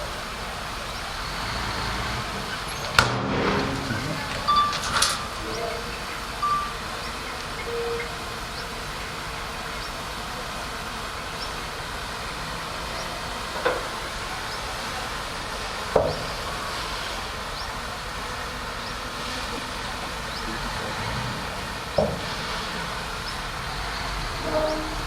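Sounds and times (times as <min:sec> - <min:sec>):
bulldozer engine running: 0:00.0 - 0:25.0
sharp metallic clanks: 0:02.4 - 0:06.8.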